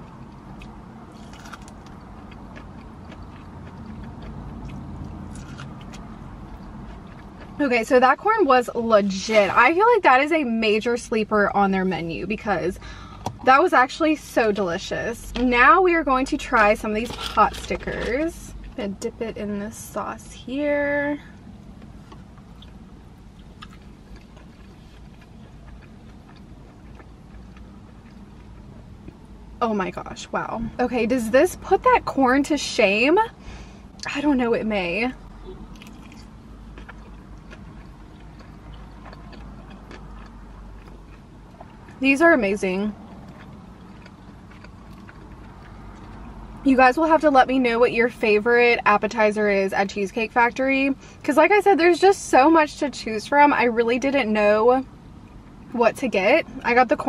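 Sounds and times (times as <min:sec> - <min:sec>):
person chewing corn: 0:00.0 - 0:07.6, 0:21.4 - 0:29.3, 0:35.4 - 0:42.0, 0:43.0 - 0:46.6
low hum: 0:00.0 - 0:48.2.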